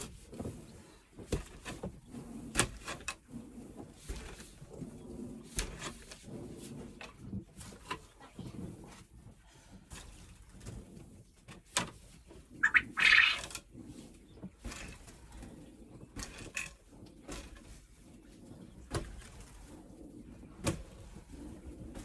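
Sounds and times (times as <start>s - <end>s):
penned birds calling: 12.6s - 13.5s.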